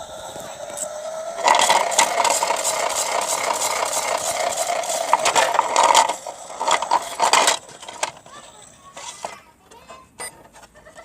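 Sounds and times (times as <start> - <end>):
small electric motor droning: 0.0 - 7.3
bricks rattling in drum: 1.4 - 8.2.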